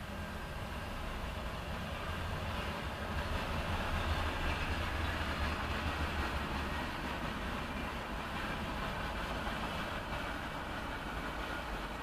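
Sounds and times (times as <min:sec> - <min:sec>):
freight train rumbling past: 0:00.0 - 0:12.0
wheels hissing on rail: 0:00.0 - 0:12.0.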